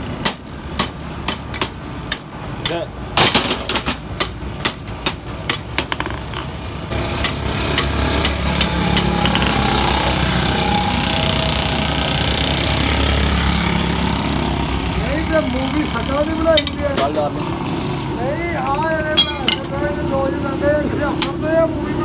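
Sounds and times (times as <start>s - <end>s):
hammer striking metal: 0.2s - 2.8s, 3.4s - 6.5s, 7.2s - 9.8s, 16.5s - 17.1s, 19.1s - 19.8s.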